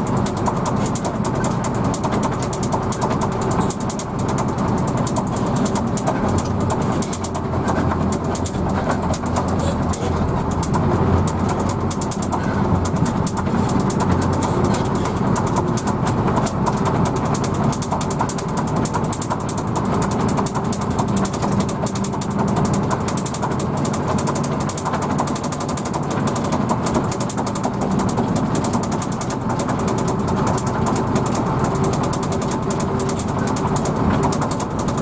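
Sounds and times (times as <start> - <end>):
bus body rattling: 0.0 - 35.0
bus engine drone: 0.0 - 35.0
road noise: 0.0 - 35.0.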